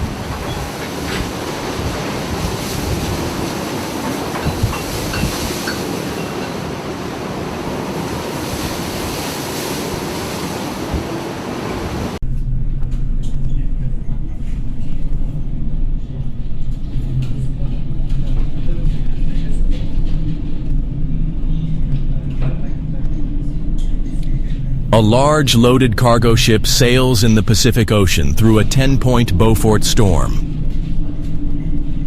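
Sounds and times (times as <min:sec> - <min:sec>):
sea waves breaking: 0:00.0 - 0:12.2.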